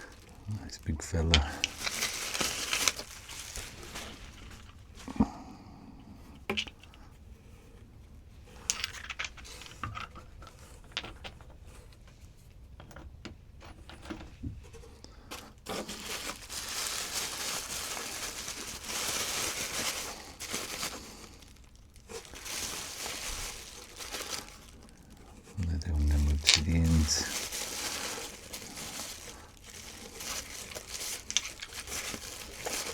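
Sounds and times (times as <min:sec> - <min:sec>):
wrapping crinkling: 0:00.0 - 0:05.4, 0:15.2 - 0:32.9.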